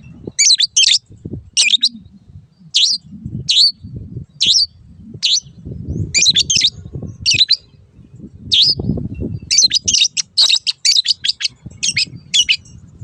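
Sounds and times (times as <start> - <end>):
low rumble: 1.0 - 9.5
bird harsh chattering calls: 1.6 - 3.8, 4.4 - 7.8, 9.5 - 12.7.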